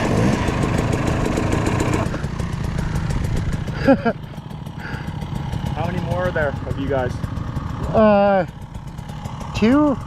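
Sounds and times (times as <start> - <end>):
dirt bike engine idling: 0.0 - 10.0.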